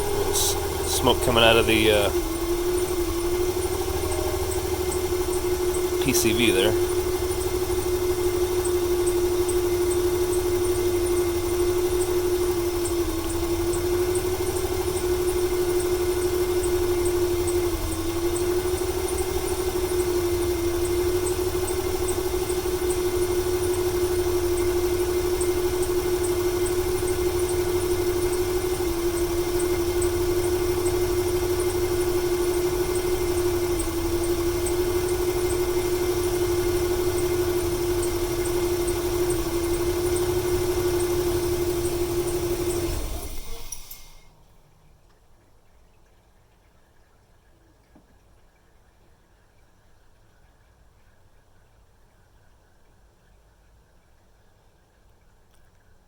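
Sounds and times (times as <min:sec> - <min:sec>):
faint fast ticking: 0:00.0 - 0:44.3
steady whine: 0:00.0 - 0:44.3
engine idling with a misfire: 0:00.0 - 0:44.6.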